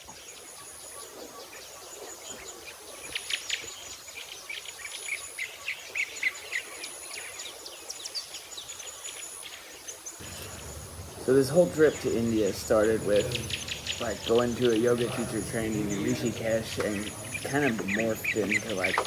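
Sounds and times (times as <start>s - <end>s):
bird chirps: 9.9s - 19.0s
high insect trill: 10.2s - 19.0s.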